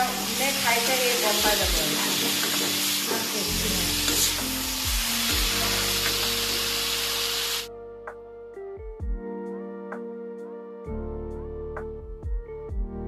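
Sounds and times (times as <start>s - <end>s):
vegetables sizzling in oil: 0.0s - 7.7s
soft background music: 0.0s - 13.0s.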